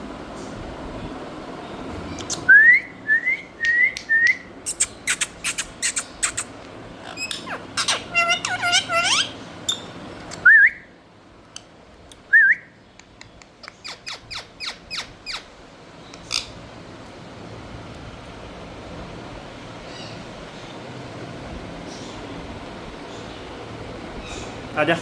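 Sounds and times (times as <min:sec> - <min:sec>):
parrot whistling and chirping: 0:02.2 - 0:10.9, 0:12.3 - 0:12.8, 0:13.8 - 0:15.5.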